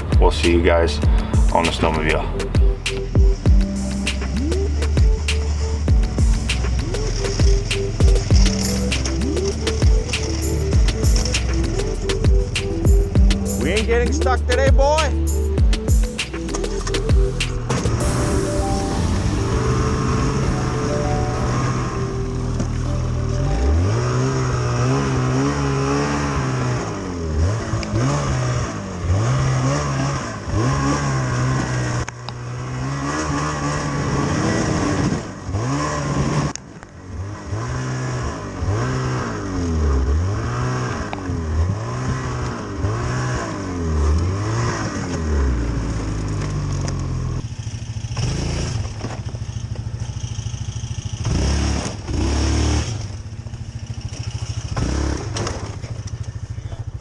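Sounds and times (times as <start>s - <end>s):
snowmobile engine revving: 0.0s - 3.1s, 16.4s - 36.5s, 51.2s - 53.2s.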